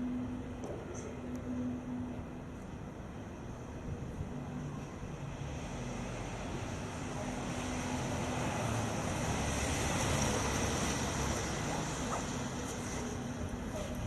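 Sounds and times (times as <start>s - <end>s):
city street traffic: 0.0s - 14.0s
vehicle approaching: 4.3s - 14.0s.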